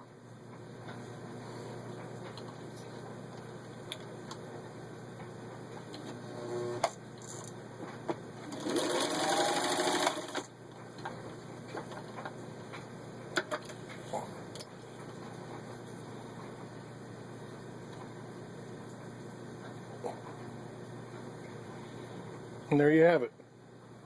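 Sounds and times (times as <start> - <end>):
sewing machine stitching leather: 8.5 - 10.5.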